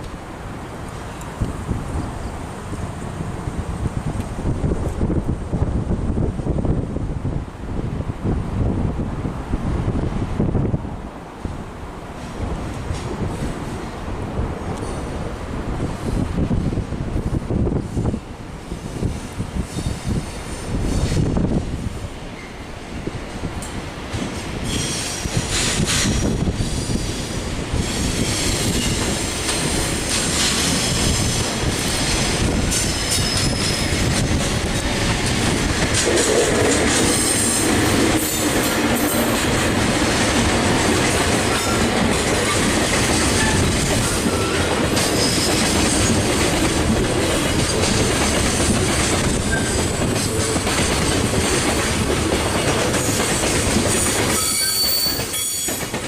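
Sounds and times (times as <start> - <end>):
train wheels rolling on rails: 0.0 - 56.0
high-pitched wheel squeal: 32.8 - 34.1, 54.3 - 55.8.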